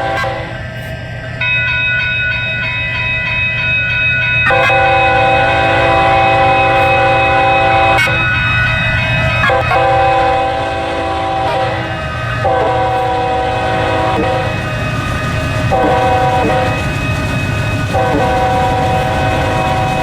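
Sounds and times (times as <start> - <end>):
locomotive air horn: 0.0 - 0.6, 4.5 - 8.3, 9.4 - 14.7, 15.7 - 16.9, 17.9 - 20.0
train rumbling on rails: 0.0 - 20.0.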